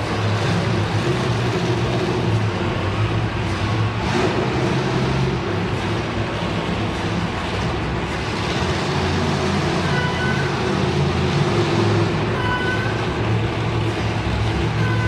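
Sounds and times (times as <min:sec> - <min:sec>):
truck engine running loudly: 0:00.0 - 0:15.0.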